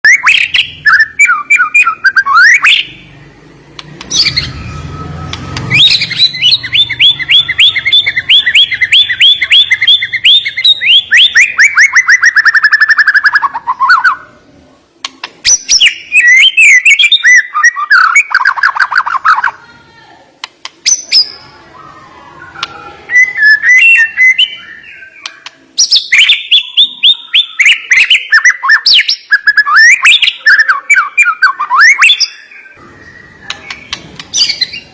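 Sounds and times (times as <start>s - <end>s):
songbird whistling phrases: 0.0s - 3.2s, 4.0s - 14.4s, 15.4s - 19.6s, 20.8s - 34.9s.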